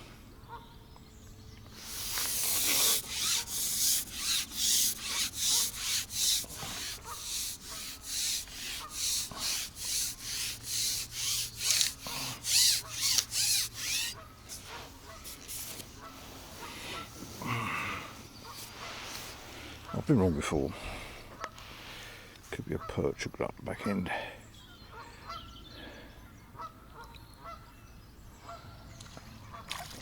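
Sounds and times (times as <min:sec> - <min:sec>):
fishing pole rubbing strokes: 0:01.8 - 0:17.4, 0:18.4 - 0:19.9.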